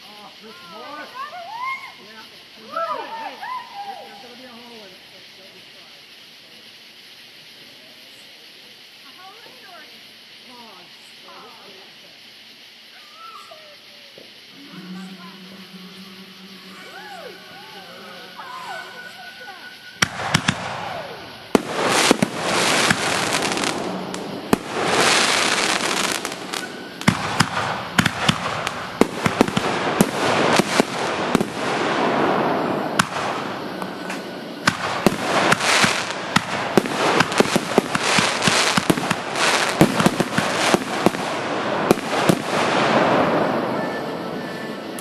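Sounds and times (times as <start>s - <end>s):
fireworks hissing crackle: 0.0s - 45.0s
fireworks sharp bangs: 14.3s - 45.0s.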